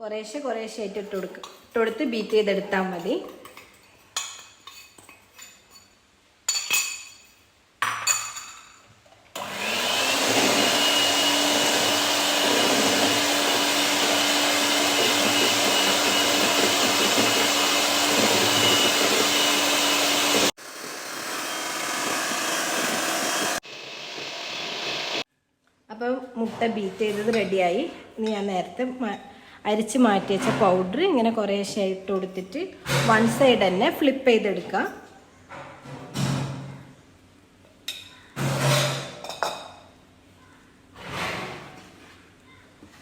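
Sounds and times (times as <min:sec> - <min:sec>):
electric egg beater whining: 0:09.4 - 0:25.3.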